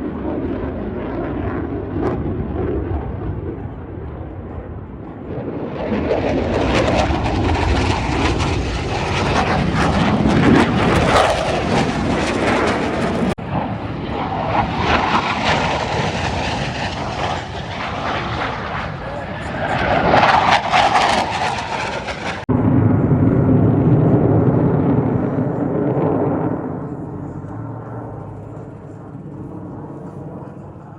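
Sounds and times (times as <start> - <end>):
airplane engine roar: 0.0 - 30.9.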